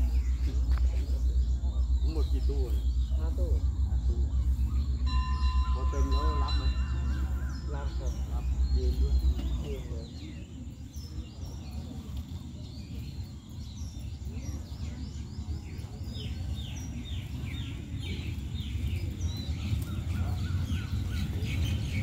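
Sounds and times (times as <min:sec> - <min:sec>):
distant diesel locomotive rumble: 0:00.0 - 0:12.1
birds chirping: 0:00.0 - 0:22.0.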